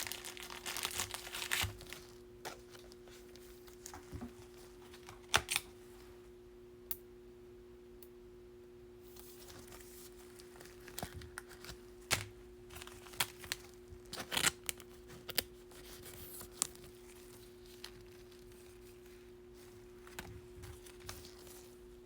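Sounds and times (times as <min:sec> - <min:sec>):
foil wrapper tearing and crinkling: 0:00.0 - 0:03.0, 0:04.8 - 0:05.7, 0:09.4 - 0:19.2, 0:19.9 - 0:21.8
low electrical hum: 0:00.0 - 0:22.0.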